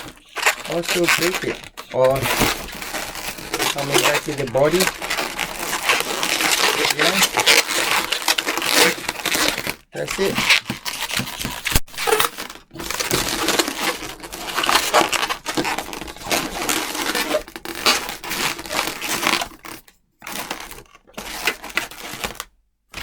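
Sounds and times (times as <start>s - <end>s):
balloons rubbing and squeaking: 0.0s - 22.4s.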